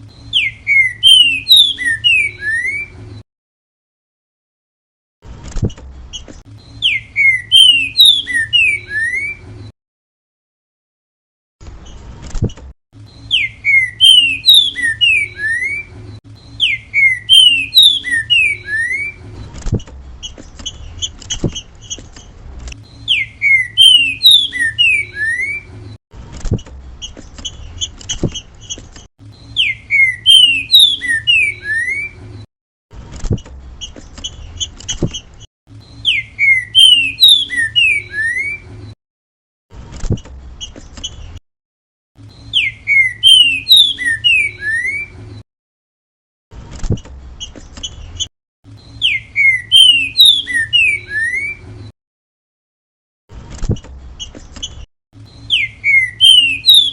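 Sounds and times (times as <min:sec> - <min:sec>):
bird whistling song: 0:00.0 - 0:03.0, 0:06.1 - 0:09.5, 0:13.1 - 0:19.3, 0:22.8 - 0:25.8, 0:29.3 - 0:32.3, 0:35.8 - 0:38.7, 0:42.2 - 0:45.2, 0:47.4 - 0:51.7, 0:54.2 - 0:56.9.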